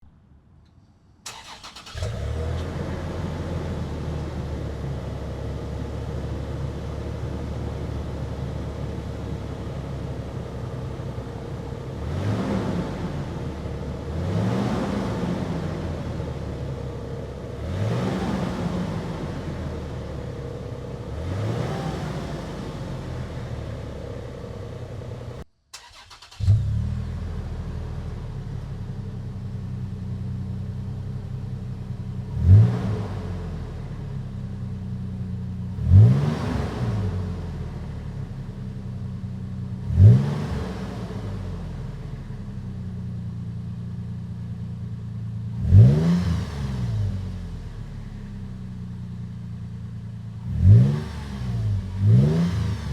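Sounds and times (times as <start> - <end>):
car engine starting and idling: 0.6 - 52.9
engine revving: 1.3 - 3.7, 11.9 - 16.4, 17.4 - 19.9, 21.0 - 23.5, 25.8 - 27.5, 32.3 - 33.7, 35.8 - 37.6, 39.8 - 41.7, 45.5 - 47.7, 50.4 - 52.9.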